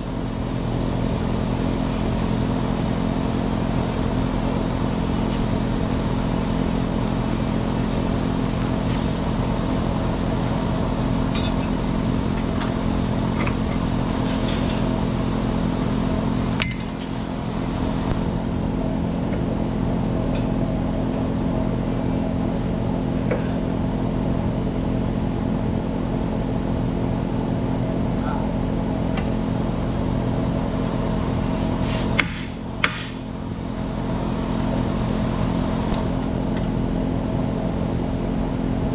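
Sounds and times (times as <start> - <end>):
engine idling: 0.0 - 25.7.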